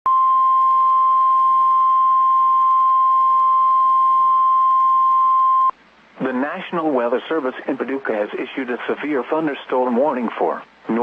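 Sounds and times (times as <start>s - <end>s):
faint radio hiss: 5.7s - 11.0s.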